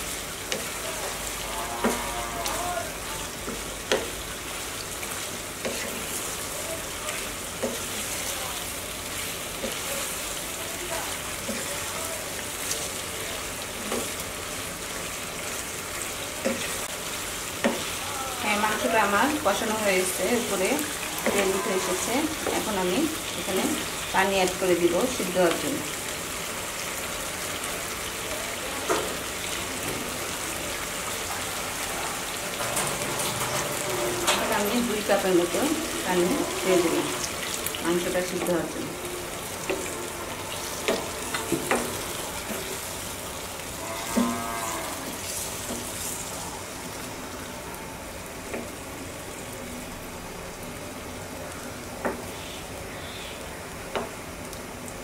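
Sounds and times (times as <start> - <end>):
meat sizzling in a frying pan: 0.0 - 55.0
wooden spatula stirring and scraping: 3.3 - 14.3, 17.6 - 24.1, 32.6 - 43.3.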